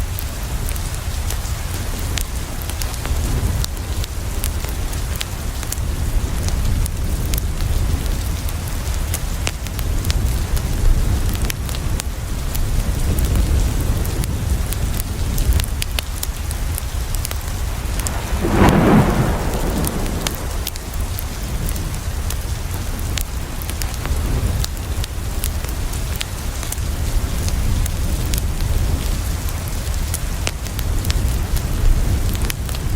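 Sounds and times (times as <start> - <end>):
steady rain: 0.0 - 32.9
thunder rolling: 17.2 - 21.8.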